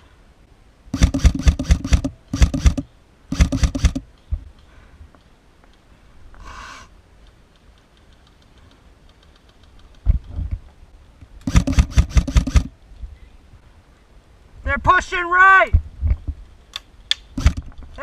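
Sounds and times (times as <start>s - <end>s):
airsoft rifle burst firing: 0.9s - 4.1s, 11.4s - 12.7s, 17.4s - 17.7s.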